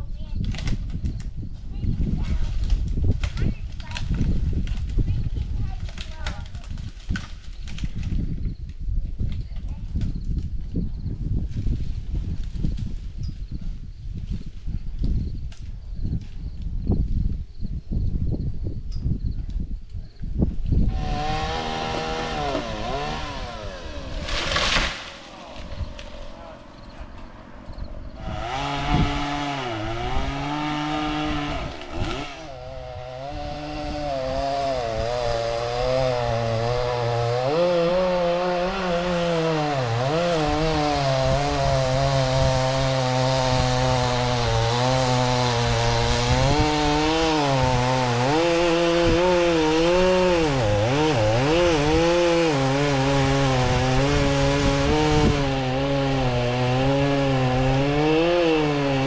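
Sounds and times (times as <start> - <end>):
chainsaw cutting wood: 2.1 - 8.3, 20.6 - 59.0.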